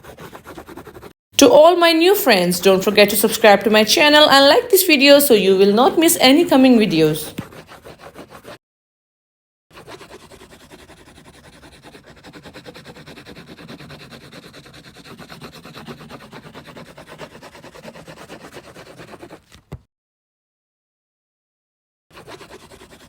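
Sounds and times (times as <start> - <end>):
coloring tool scribbling on paper: 0.0 - 1.2, 6.6 - 8.6, 9.7 - 19.6, 22.1 - 23.0.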